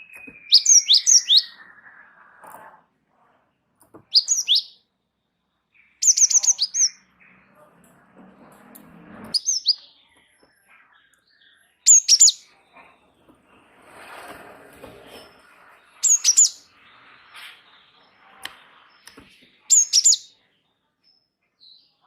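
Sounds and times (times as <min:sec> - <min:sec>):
songbird chirping and whistling: 0:00.0 - 0:02.7, 0:04.0 - 0:04.9, 0:05.8 - 0:07.4, 0:09.3 - 0:12.6, 0:15.9 - 0:20.4.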